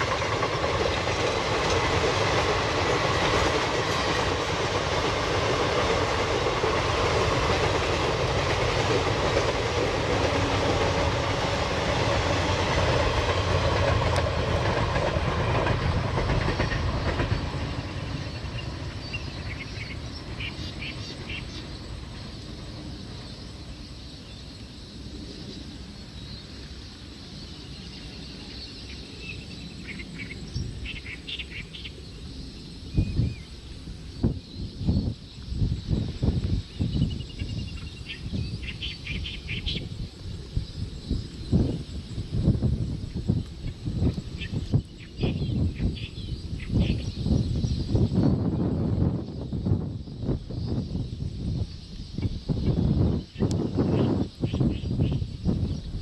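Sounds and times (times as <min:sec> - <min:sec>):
train wheels clattering on rails: 0:00.0 - 0:23.9.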